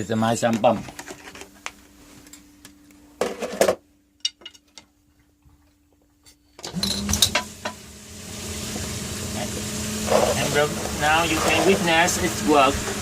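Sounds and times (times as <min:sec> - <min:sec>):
sump pump motor hum: 0:06.7 - 0:13.0
water rushing: 0:07.8 - 0:13.0.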